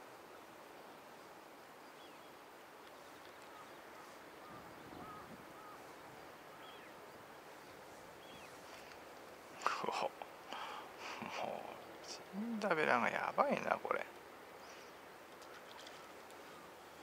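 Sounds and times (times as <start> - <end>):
faint background hiss: 0.0 - 17.0
faint bird chirps: 1.8 - 7.0, 8.2 - 8.6, 14.6 - 17.0.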